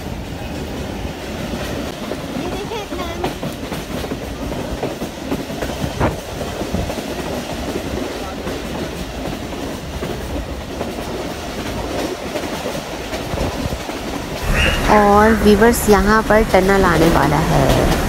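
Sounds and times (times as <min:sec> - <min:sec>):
train wheels rumbling: 0:00.0 - 0:18.0
wheels clacking over rail joints: 0:00.0 - 0:18.0.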